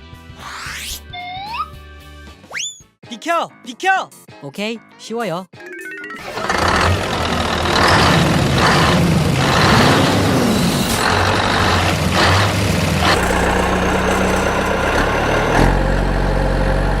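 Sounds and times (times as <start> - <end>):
heavy truck engine running: 6.2 - 17.0.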